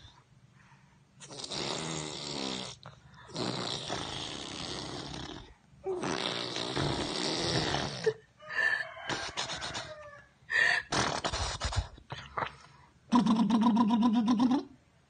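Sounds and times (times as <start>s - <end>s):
lips blowing raspberry: 1.2s - 8.2s, 9.1s - 10.0s, 10.7s - 14.7s.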